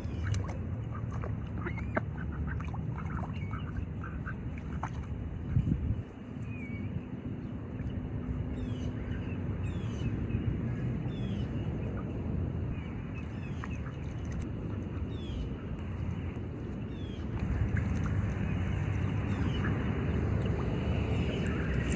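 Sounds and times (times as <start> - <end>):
low outdoor background: 0.0 - 21.9
songbird chirping: 17.0 - 21.9.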